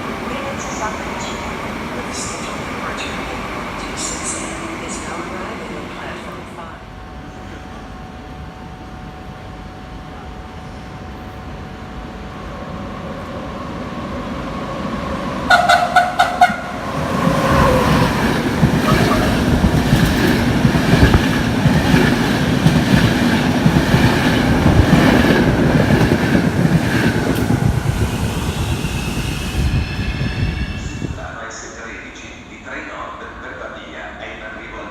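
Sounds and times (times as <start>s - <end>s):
train horn blasts: 15.5s - 16.8s
train wheels clattering over rails: 17.2s - 29.0s.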